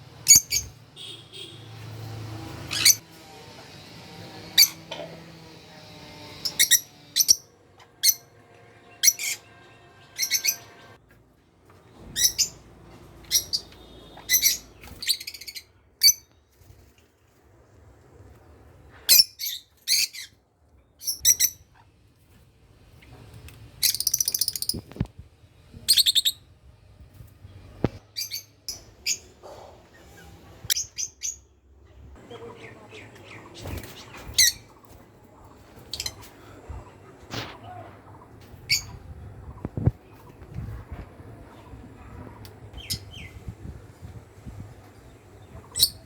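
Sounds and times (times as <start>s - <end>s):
lovebirds chirping: 0.2s - 3.0s, 9.0s - 11.0s, 13.2s - 16.4s, 23.8s - 25.0s, 41.4s - 46.0s.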